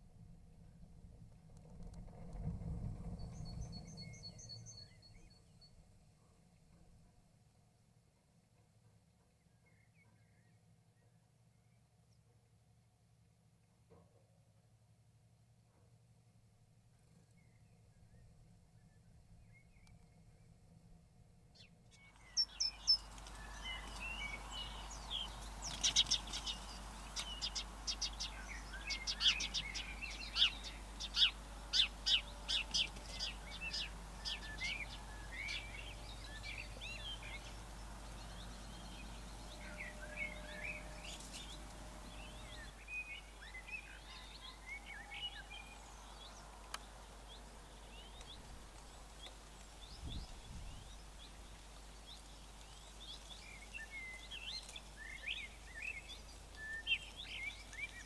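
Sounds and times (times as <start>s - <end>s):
songbirds chirping and whistling: 3.1s - 5.8s, 21.6s - 58.0s.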